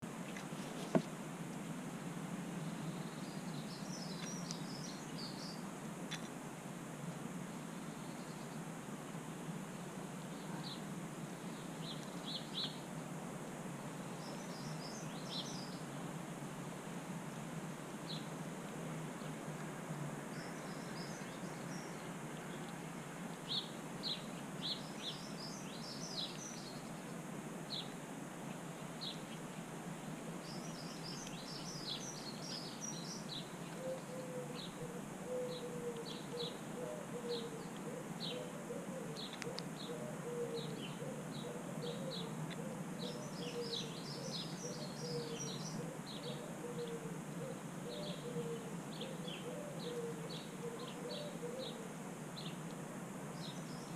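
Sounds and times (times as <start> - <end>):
background hiss: 0.0 - 53.9
small birds chirping: 2.6 - 6.3, 10.3 - 12.9, 14.1 - 16.0, 23.4 - 29.6, 30.4 - 40.0, 40.6 - 51.8, 53.4 - 53.9.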